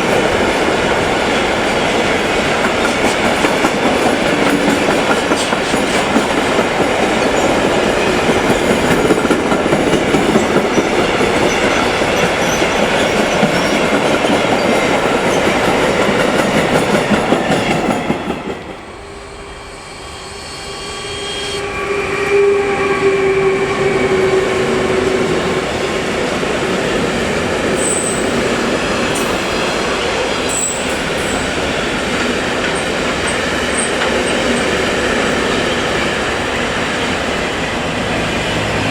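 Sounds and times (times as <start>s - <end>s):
train wheel clatter: 0.0s - 18.9s, 23.8s - 38.9s
steady train tone: 0.0s - 38.9s
train rushing past: 0.0s - 38.9s
high wheel squeals: 19.2s - 26.0s, 27.7s - 29.7s, 30.4s - 32.0s.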